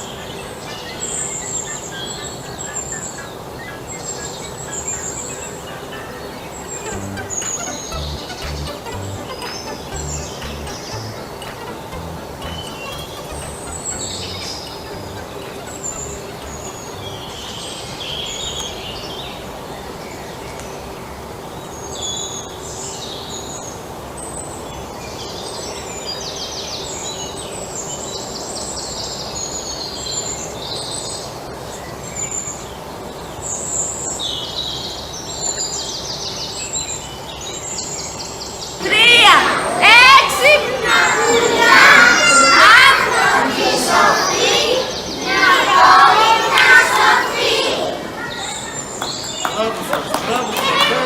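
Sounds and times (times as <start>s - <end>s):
birds chirping: 3.0s - 18.6s, 38.8s - 51.0s.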